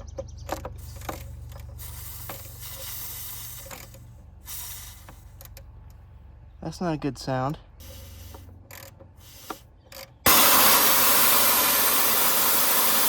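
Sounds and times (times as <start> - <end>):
hiss: 1.8 - 5.3, 7.8 - 8.5, 9.2 - 9.7, 10.3 - 13.0.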